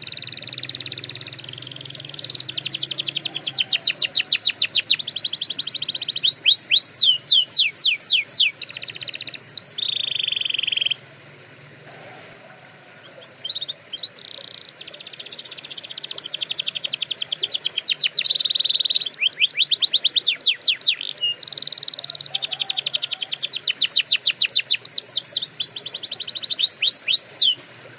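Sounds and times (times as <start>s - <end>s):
canary singing trills: 0.0s - 11.1s, 11.9s - 27.9s.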